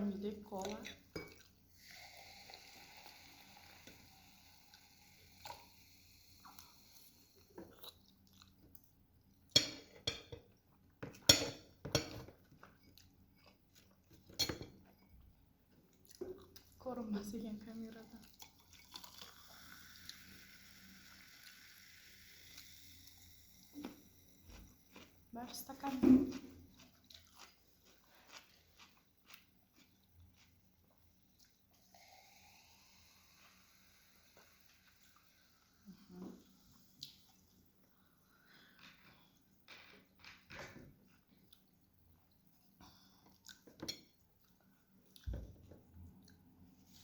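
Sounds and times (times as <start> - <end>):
soft chewing: 0.5 - 1.8, 6.4 - 9.5, 12.2 - 16.8, 17.8 - 19.5, 23.8 - 31.9, 36.4 - 40.4, 41.0 - 47.0
cutlery clinking against a dish: 9.6 - 10.4, 11.0 - 13.0, 14.3 - 14.8.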